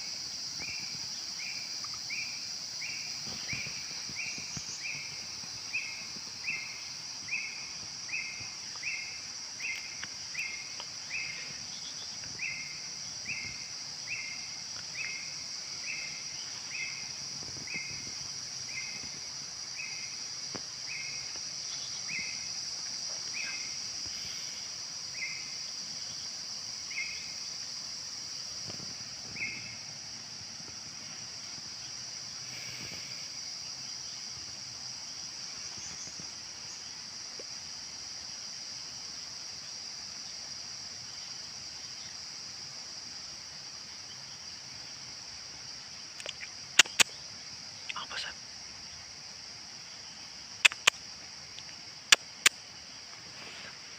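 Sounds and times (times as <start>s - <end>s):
insect drone: 0.0s - 53.9s
sharp clicks: 46.2s - 47.1s, 50.6s - 51.0s.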